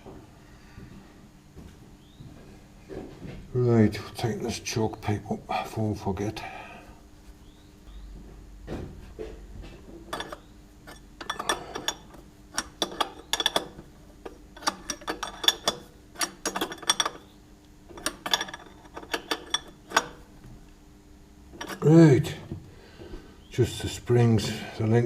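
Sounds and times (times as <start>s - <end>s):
spanner clicking against nut: 10.1s - 13.8s.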